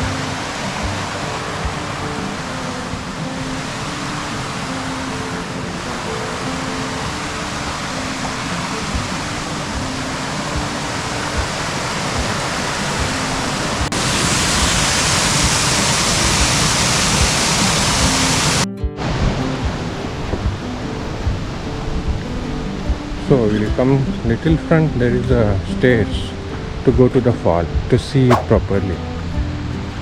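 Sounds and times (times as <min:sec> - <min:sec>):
waterfall rushing: 0:00.0 - 0:19.2
quiet background music: 0:00.0 - 0:30.0.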